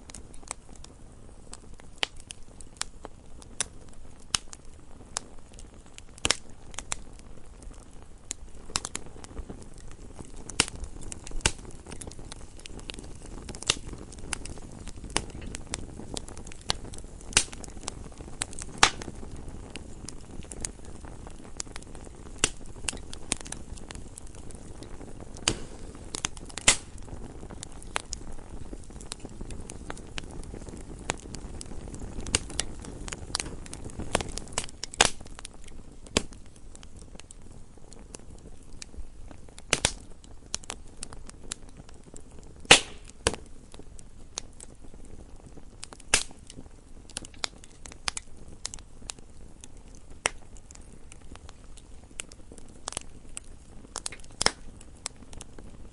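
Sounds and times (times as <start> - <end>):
wood fire crackling and popping: 0.0 - 55.9.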